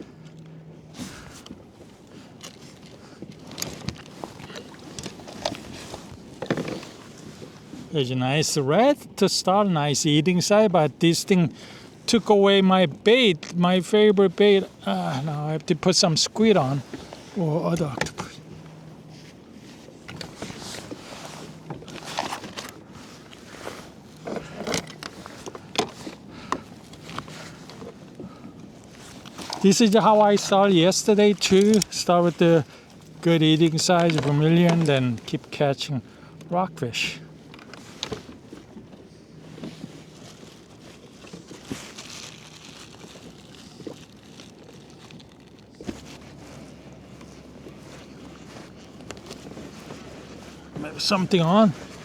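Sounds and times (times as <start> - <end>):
fishing tackle clicks and rustles: 0.0 - 52.0
brief rustle: 16.8 - 30.6.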